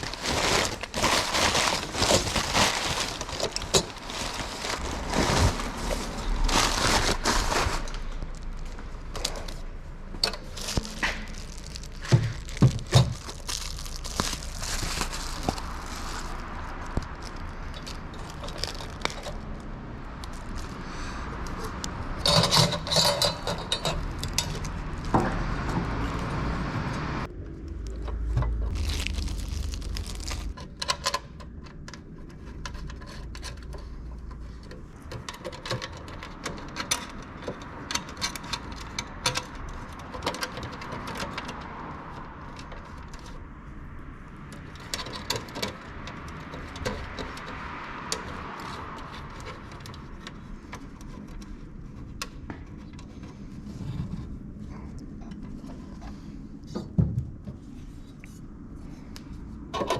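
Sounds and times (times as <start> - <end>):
small metal parts rattling: 0.0 - 9.6, 10.2 - 19.6, 21.6 - 25.1
handling clicks knocks and scraping: 0.0 - 26.4, 30.1 - 43.5, 44.4 - 59.9
low rumble: 23.6 - 30.6.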